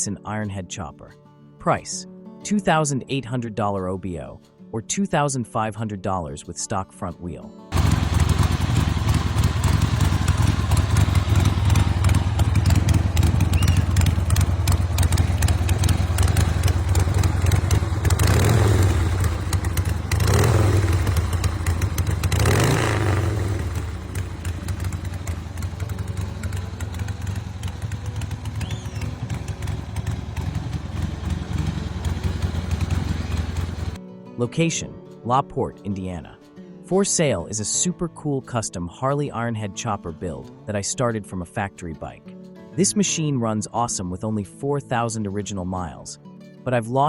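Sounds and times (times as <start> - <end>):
motorcycle engine idling and revving: 7.7 - 34.0.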